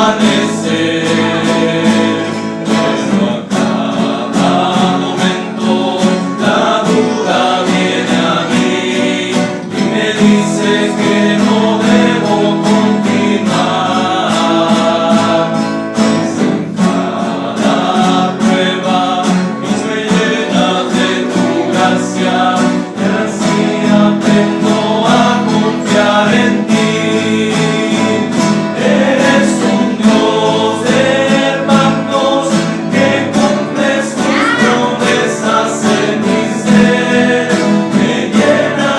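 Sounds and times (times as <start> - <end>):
men singing in harmony: 0.0 - 38.9
strummed guitars: 0.0 - 38.9.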